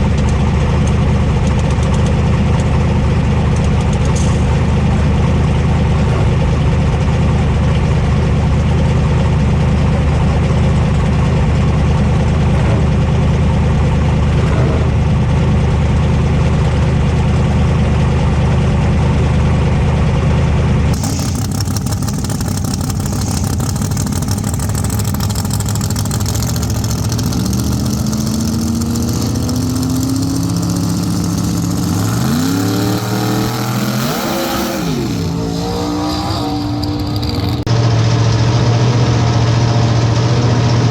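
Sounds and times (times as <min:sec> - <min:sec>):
race car engine idling: 0:00.0 - 0:40.9
engine revving: 0:20.7 - 0:40.9.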